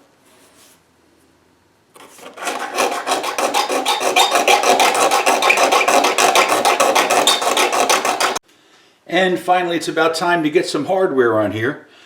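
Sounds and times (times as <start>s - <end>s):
hand file scraping wood: 2.0s - 8.4s.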